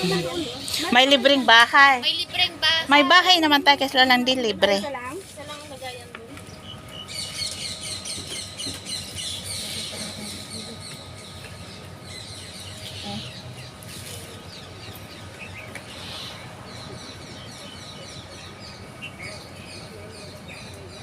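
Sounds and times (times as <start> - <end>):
small birds chirping: 5.4 - 21.0.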